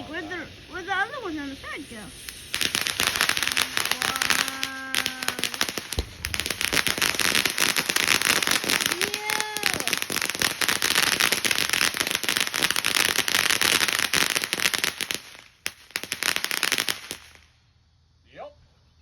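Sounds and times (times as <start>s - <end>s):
fireworks crackling: 0.0s - 17.7s
low thump: 6.0s - 6.4s.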